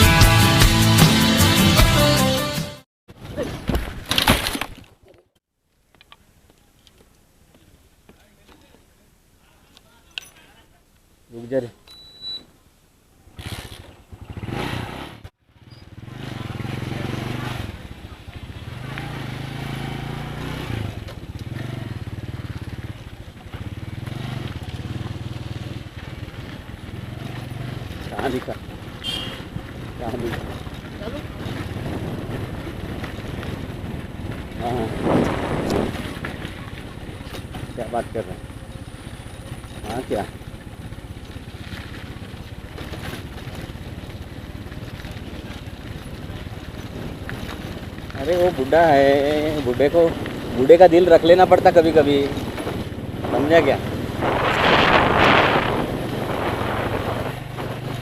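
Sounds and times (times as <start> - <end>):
motorcycle engine under throttle: 13.2 - 58.0.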